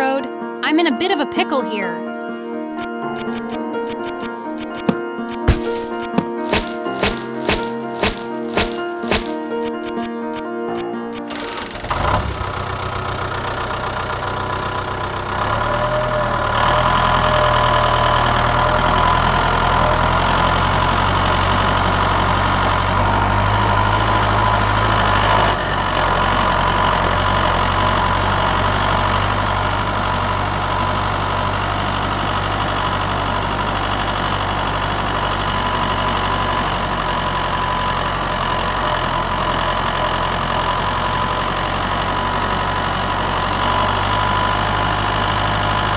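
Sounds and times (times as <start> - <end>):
tractor engine idling: 11.2 - 45.9.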